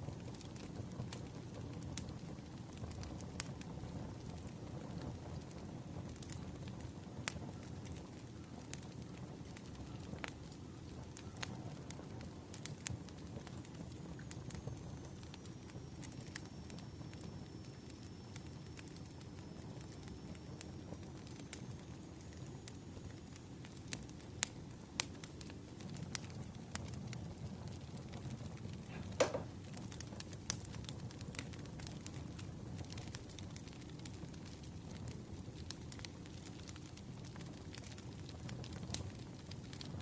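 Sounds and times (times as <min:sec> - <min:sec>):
firewood popping and snapping: 0:23.6 - 0:39.9.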